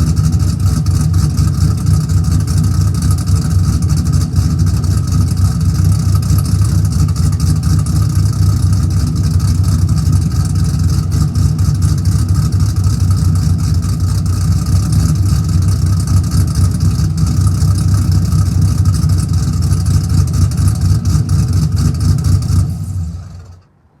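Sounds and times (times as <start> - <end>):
car engine idling: 0.0 - 23.6.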